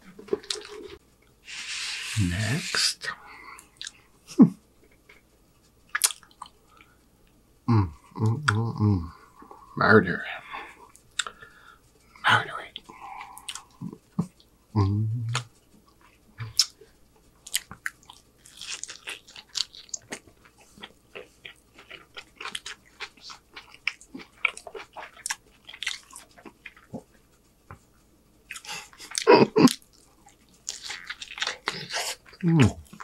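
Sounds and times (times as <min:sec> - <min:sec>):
chewing and wet mouth sounds: 0:00.2 - 0:01.0, 0:03.6 - 0:04.0, 0:05.9 - 0:06.9, 0:10.8 - 0:11.4, 0:12.7 - 0:14.5, 0:15.3 - 0:16.8, 0:17.4 - 0:27.9, 0:28.5 - 0:33.0.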